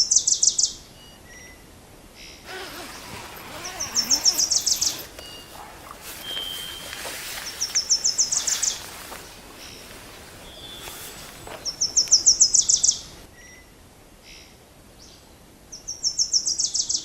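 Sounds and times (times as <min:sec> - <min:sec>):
faint outdoor background: 0:00.0 - 0:17.0
songbird singing: 0:02.5 - 0:13.6
thin whistled bird call: 0:03.5 - 0:13.6.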